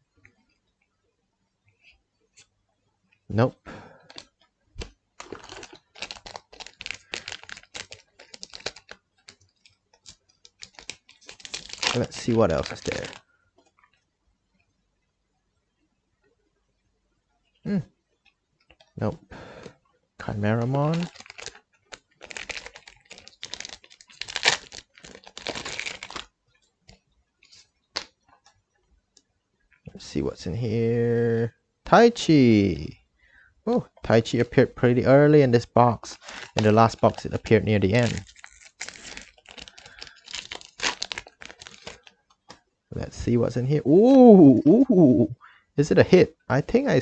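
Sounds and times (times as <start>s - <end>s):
cards rustling: 4.1s - 13.2s, 20.6s - 26.3s, 36.2s - 42.6s
wrapper crinkling: 4.1s - 13.2s, 20.4s - 26.4s, 36.2s - 42.6s.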